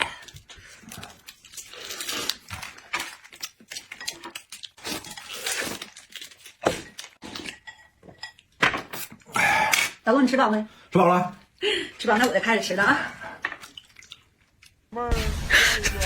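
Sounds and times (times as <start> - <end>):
chewing and mouth noises: 0.0 - 7.6, 13.4 - 14.9.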